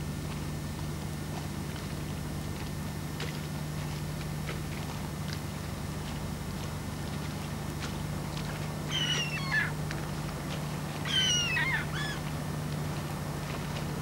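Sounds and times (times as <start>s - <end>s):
steady low hum: 0.0s - 14.0s
bird calls: 8.9s - 9.8s, 11.0s - 12.3s.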